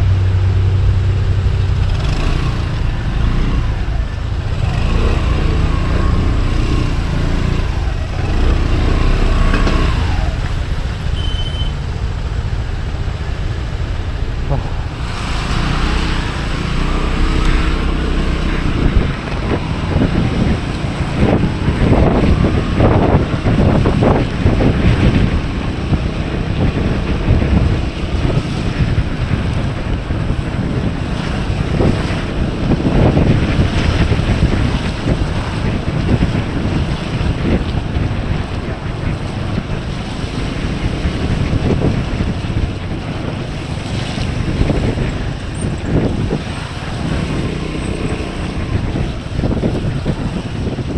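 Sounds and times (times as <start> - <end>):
scooter engine hum: 0.0 - 50.9
wind buffeting microphone: 0.0 - 50.9.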